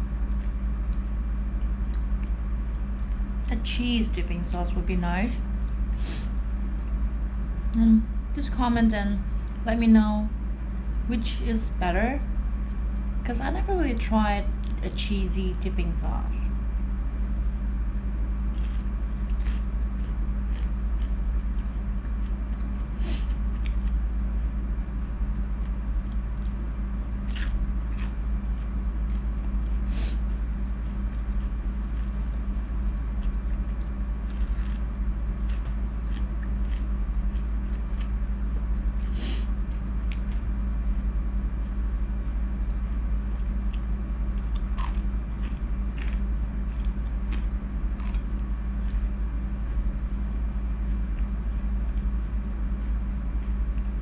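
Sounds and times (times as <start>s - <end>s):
low electrical hum: 0.0s - 54.0s
person chewing close to microphone: 0.2s - 2.4s, 18.5s - 24.5s, 25.6s - 41.8s, 43.2s - 54.0s.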